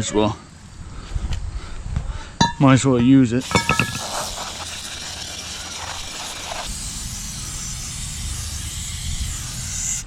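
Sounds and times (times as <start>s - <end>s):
aerosol can spraying hiss: 3.4s - 10.0s.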